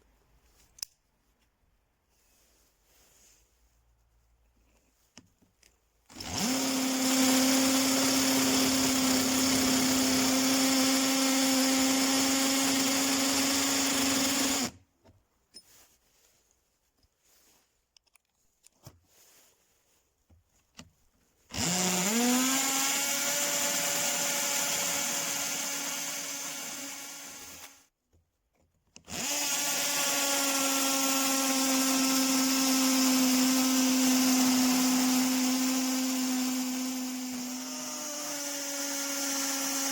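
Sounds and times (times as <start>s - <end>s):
cordless drill motor whining: 6.1s - 14.8s, 21.5s - 27.8s, 29.0s - 39.9s.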